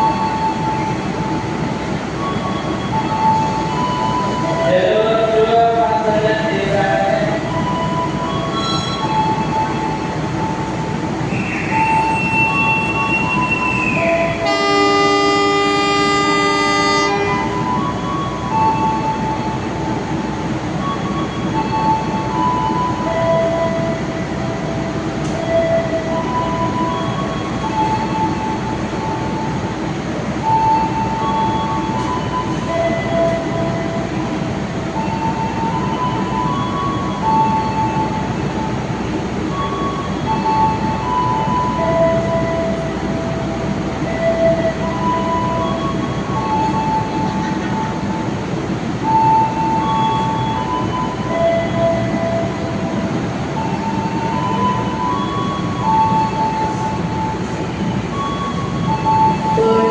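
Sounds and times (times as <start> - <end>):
train wheels rumbling: 0.0 - 59.9
multi-tone train horn: 2.3 - 10.1, 11.3 - 19.5, 49.0 - 59.9.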